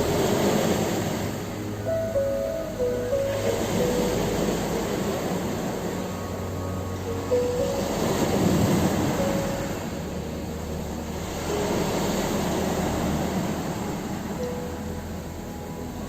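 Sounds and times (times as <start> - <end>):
ocean waves breaking on shore: 0.0 - 16.0
soft music notes: 0.0 - 16.0.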